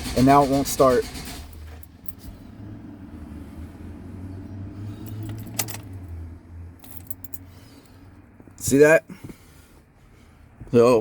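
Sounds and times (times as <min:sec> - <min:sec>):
engine cranking on starter: 0:00.0 - 0:01.9.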